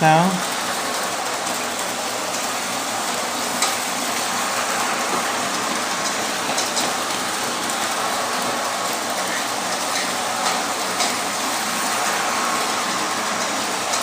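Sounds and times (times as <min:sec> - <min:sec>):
toy train rattling on track: 0:05.0 - 0:11.8.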